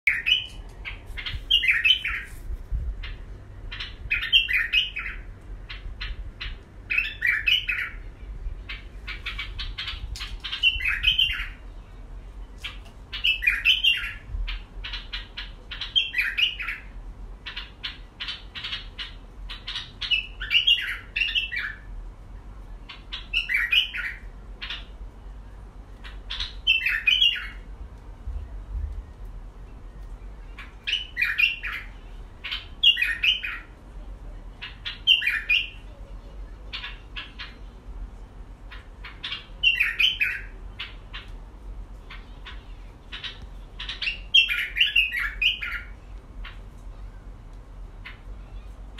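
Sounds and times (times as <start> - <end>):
bird chirping call: 0.1 - 2.3, 3.0 - 11.7, 12.5 - 21.9, 22.8 - 27.6, 29.7 - 33.7, 34.6 - 36.0, 38.7 - 41.4, 42.0 - 46.6.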